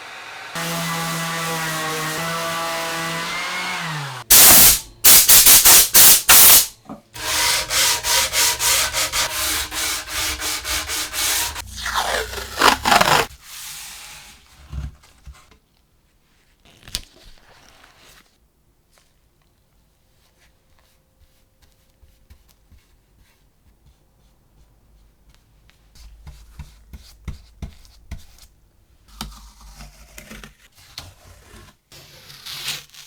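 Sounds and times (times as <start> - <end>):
small electric motor: 0.0 - 4.7
hand-sanding strokes: 0.0 - 14.3.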